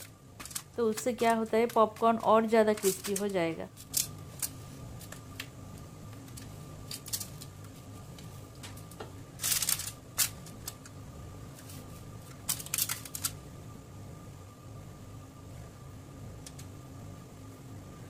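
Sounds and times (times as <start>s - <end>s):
popcorn rustling on a tray: 0.0s - 5.4s, 6.2s - 10.8s, 11.5s - 13.4s.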